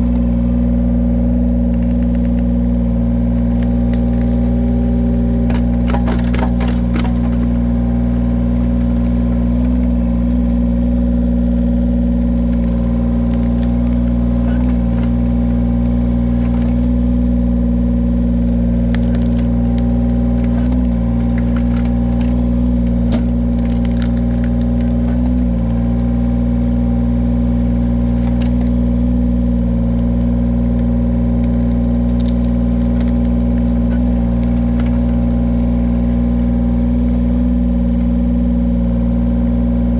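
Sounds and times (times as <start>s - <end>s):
heavy equipment engine running: 0.0s - 39.9s
wood knocking and cracking: 1.4s - 10.7s, 11.4s - 17.2s, 18.4s - 26.4s, 27.8s - 28.8s, 30.1s - 36.2s.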